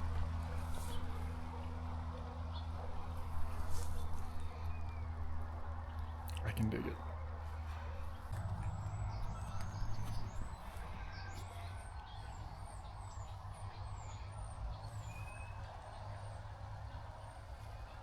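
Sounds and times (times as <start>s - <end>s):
small birds chirping: 2.5s - 16.4s
steady low rumble: 7.5s - 12.8s.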